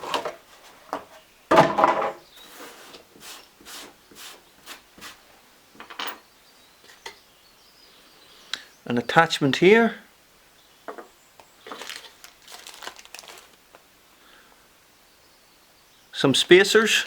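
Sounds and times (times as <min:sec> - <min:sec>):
plastic packaging handling: 0:11.6 - 0:13.8.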